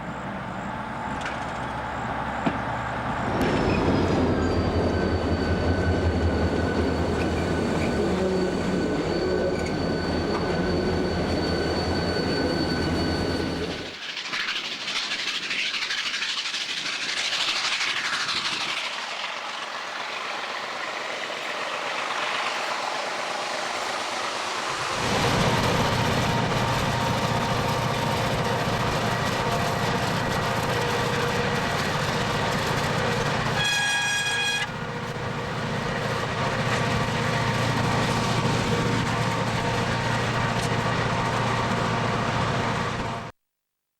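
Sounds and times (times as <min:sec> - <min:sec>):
locomotive engine humming: 0:00.0 - 0:43.3
train rolling on track: 0:00.0 - 0:43.3
train horn blast: 0:33.4 - 0:34.8.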